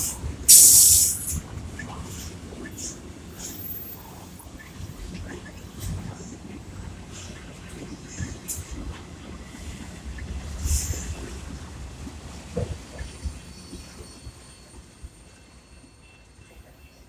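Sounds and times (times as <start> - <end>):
train knocks and clanks: 4.5 - 17.0.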